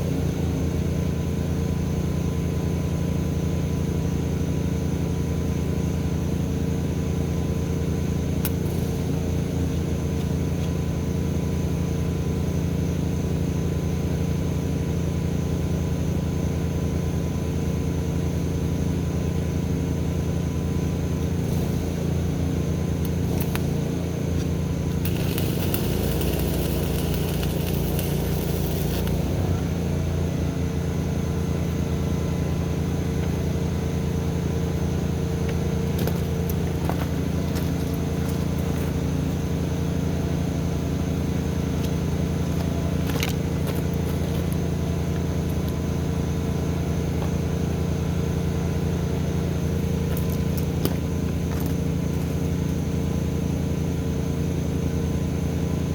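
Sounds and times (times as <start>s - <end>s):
engine running steadily: 0.0s - 55.9s
crackling hiss: 23.0s - 30.0s.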